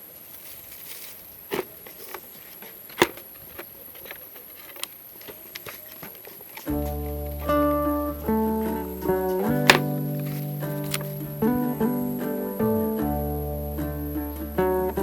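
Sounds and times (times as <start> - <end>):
faint steady background noise: 0.0 - 15.0.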